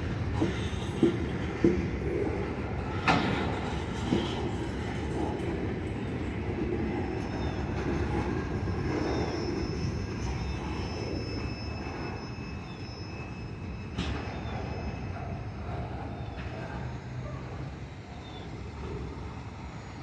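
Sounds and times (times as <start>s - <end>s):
freight train rumbling past: 0.0s - 20.0s.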